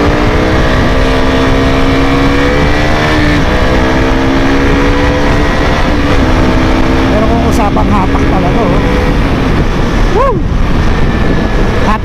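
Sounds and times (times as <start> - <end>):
motorcycle engine accelerating: 0.0 - 12.0
wind rush on microphone: 0.0 - 12.0.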